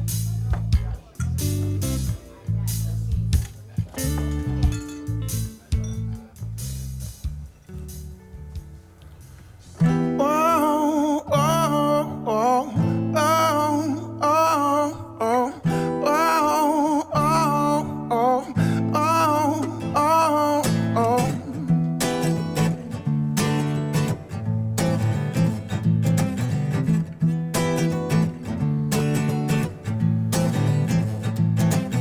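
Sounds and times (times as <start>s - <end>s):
bending lead guitar line: 0.0s - 6.6s, 9.8s - 32.0s
low bass notes: 0.0s - 9.4s
live band playing soul-blues: 0.0s - 9.7s
strummed guitar: 0.0s - 32.0s.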